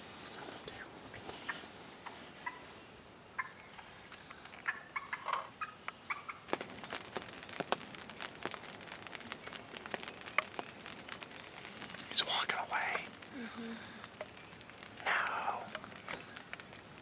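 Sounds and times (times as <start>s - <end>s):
turkey calling: 1.5s - 2.7s, 3.3s - 6.5s
patter of sharp ticks: 3.4s - 13.3s, 14.0s - 17.0s.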